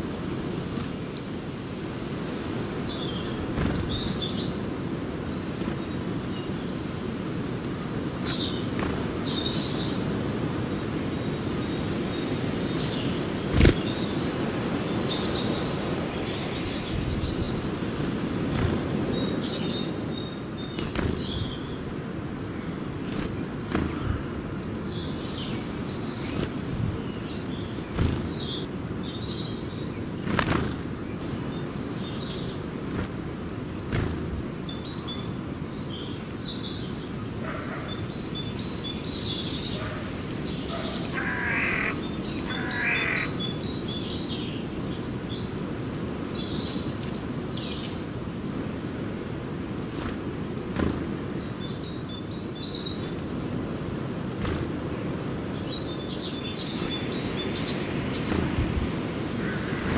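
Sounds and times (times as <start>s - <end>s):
small birds chirping: 0.0s - 59.9s
lower bird calls: 12.4s - 21.8s, 22.5s - 48.7s, 55.5s - 59.9s.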